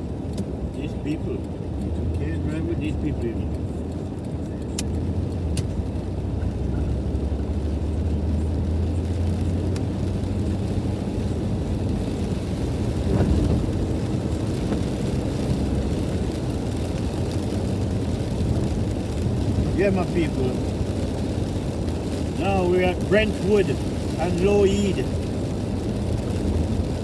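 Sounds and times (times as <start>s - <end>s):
engine and tyres rumbling: 0.0s - 27.0s.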